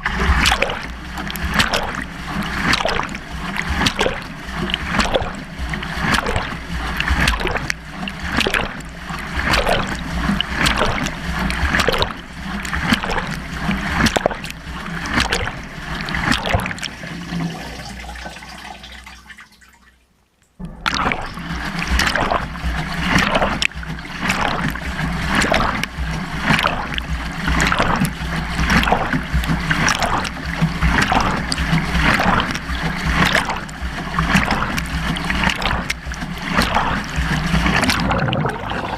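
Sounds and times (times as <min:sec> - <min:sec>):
water sloshing in washing machine: 0:00.0 - 0:38.9.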